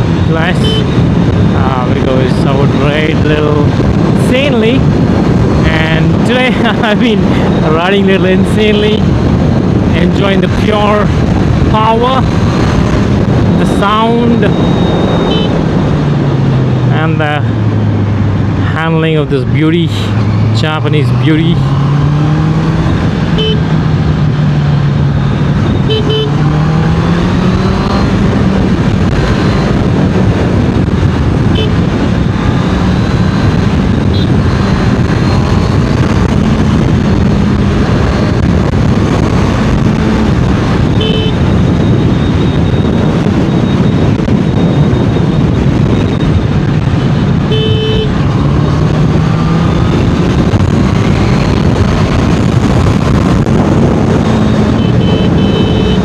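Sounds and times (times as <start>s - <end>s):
motorcycle engine at speed: 0.0s - 56.0s
wind and road rush: 0.0s - 56.0s
horn toots: 0.5s - 1.0s, 15.2s - 15.6s, 23.3s - 23.7s, 25.8s - 28.0s, 31.5s - 31.8s, 40.9s - 41.5s, 47.3s - 48.2s, 54.2s - 56.0s.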